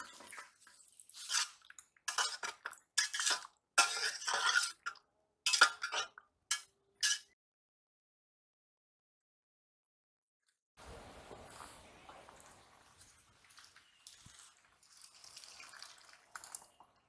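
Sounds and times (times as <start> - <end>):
metal ladle clinking and scraping: 1.1 - 7.4.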